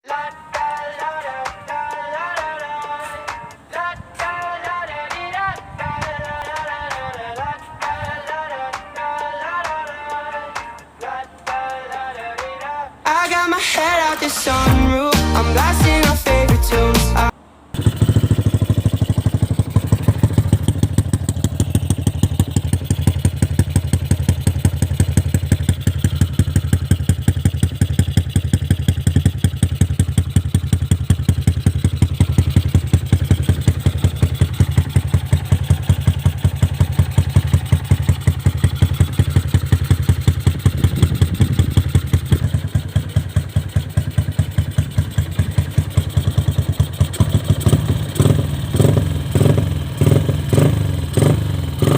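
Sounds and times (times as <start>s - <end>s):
motorcycle engine idling: 17.8s - 51.9s.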